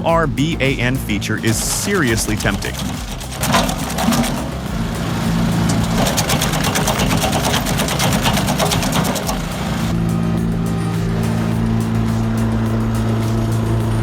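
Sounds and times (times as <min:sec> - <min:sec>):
wood crackling being chipped: 0:01.5 - 0:09.9
wood chipper engine: 0:01.5 - 0:14.0.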